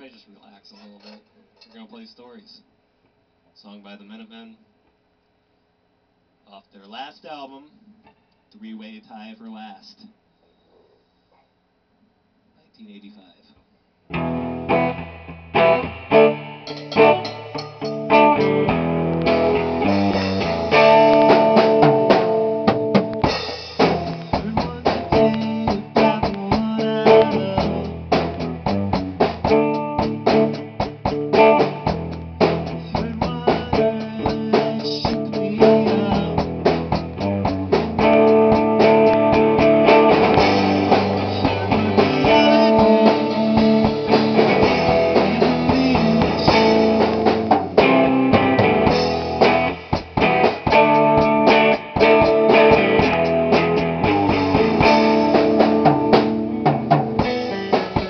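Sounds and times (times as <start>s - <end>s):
electric guitar chords: 14.1s - 58.0s
rock band playing live: 14.1s - 58.0s
sharp drum hits: 15.6s - 58.0s.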